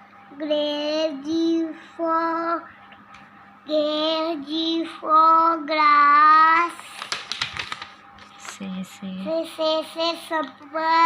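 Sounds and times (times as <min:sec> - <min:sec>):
child singing: 0:00.3 - 0:02.7, 0:03.7 - 0:07.0, 0:09.3 - 0:11.0.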